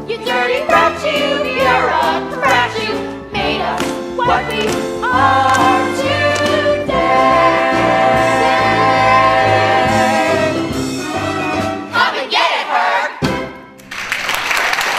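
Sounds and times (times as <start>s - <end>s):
choir singing with instruments: 0.0s - 13.7s.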